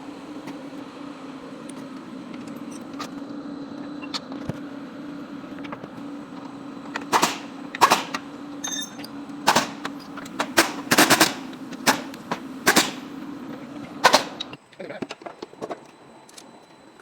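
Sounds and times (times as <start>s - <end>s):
low mechanical hum: 0.0s - 17.0s
sharp metallic bangs: 7.1s - 13.1s.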